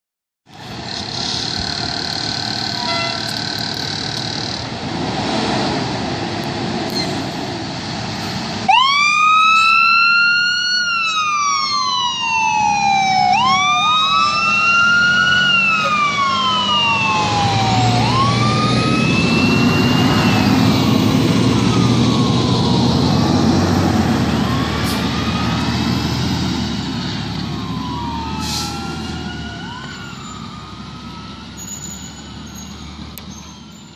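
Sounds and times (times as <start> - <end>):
road and traffic noise: 0.4 - 33.9
heavy truck engine rumble: 0.5 - 33.9
fire truck siren wailing: 8.5 - 33.9.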